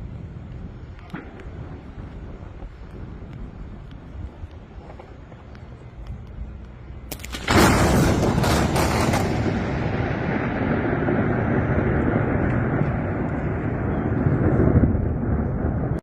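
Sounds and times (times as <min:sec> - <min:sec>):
thunder rumbling: 0:00.0 - 0:16.0
lightning crack: 0:07.1 - 0:16.0.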